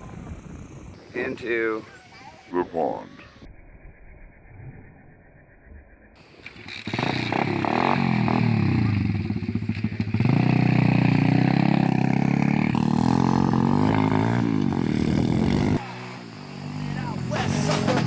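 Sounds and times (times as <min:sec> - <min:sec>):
motorbike engine revving: 0:06.2 - 0:18.0.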